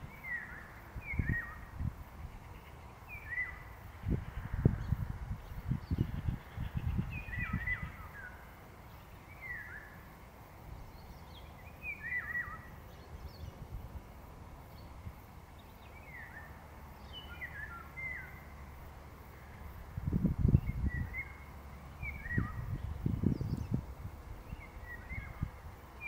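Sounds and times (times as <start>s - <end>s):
songbird whistling: 7.2s - 8.4s, 11.3s - 12.8s, 22.0s - 22.8s.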